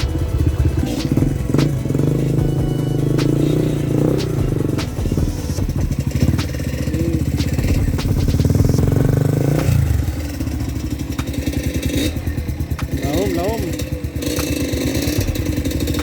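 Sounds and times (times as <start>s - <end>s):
motorcycle engine under throttle: 0.0s - 16.0s
sharp clicks: 3.1s - 5.2s, 6.1s - 9.8s, 14.2s - 16.0s.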